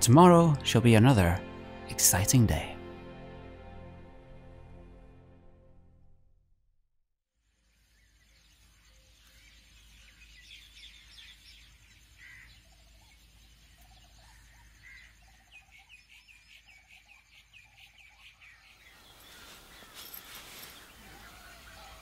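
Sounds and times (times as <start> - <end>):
small birds chirping: 7.4 - 22.0.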